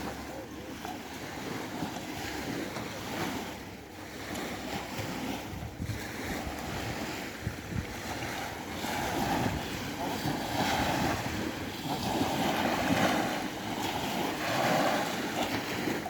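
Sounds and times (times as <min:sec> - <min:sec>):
sea waves: 0:00.0 - 0:16.0
wind gusting on microphone: 0:04.9 - 0:16.0.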